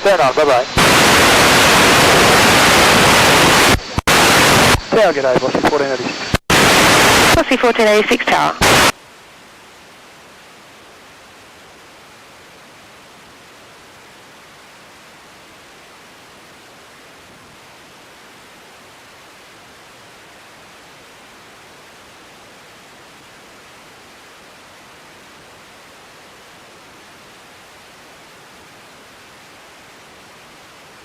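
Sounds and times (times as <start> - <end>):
radio static hiss: 0.0 - 9.1.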